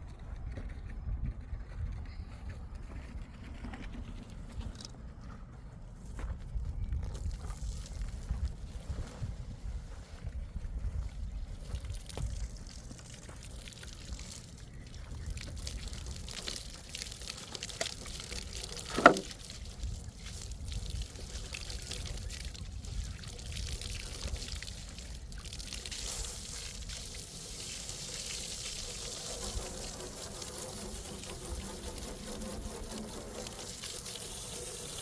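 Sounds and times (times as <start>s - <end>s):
water pouring and trickling: 10.9s - 35.0s.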